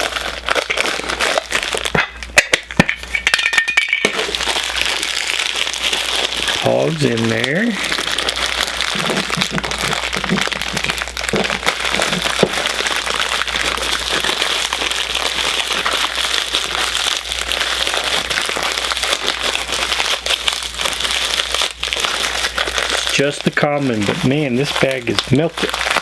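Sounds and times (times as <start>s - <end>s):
plastic bag crinkling: 0.0s - 26.0s.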